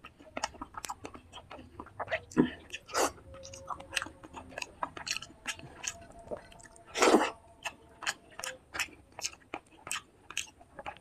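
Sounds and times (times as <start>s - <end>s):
wet chewing and lip smacks: 0.0s - 11.0s.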